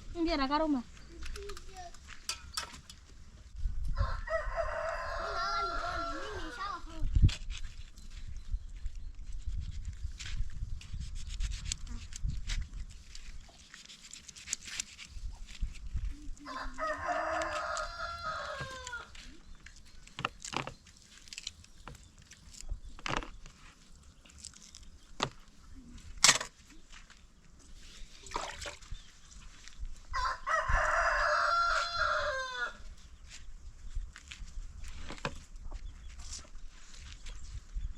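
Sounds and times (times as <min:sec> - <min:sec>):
rooster crowing: 0:03.9 - 0:06.6, 0:16.4 - 0:19.1, 0:30.1 - 0:32.8.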